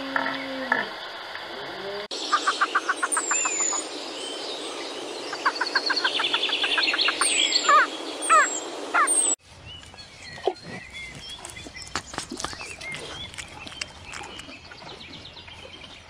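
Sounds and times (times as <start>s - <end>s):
birds trilling and chirping: 2.1s - 16.0s.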